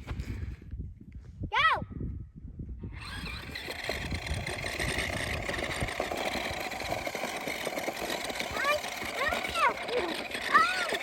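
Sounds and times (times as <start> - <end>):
motor running: 3.0 - 11.0.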